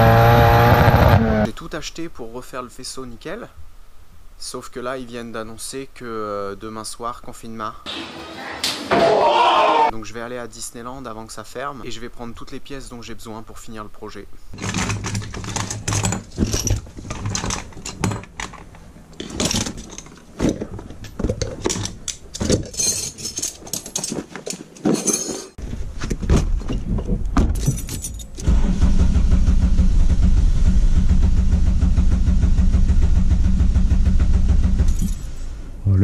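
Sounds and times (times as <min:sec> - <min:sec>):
car engine running: 0:00.0 - 0:01.5, 0:28.5 - 0:35.7
tools clinking and clicking: 0:14.6 - 0:20.3, 0:20.9 - 0:25.6, 0:27.5 - 0:28.4.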